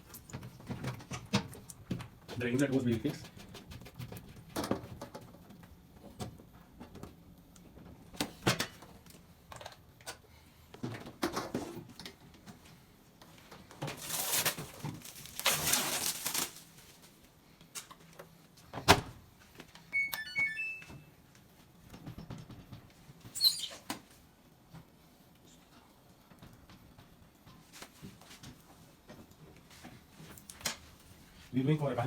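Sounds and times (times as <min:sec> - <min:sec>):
short electronic beeps: 0:20.0 - 0:21.1.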